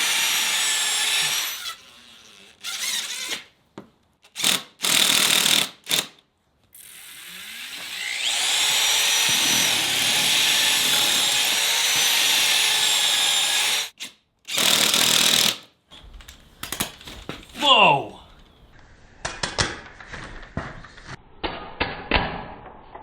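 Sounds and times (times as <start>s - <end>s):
electric power tool whining: 6.8s - 15.5s.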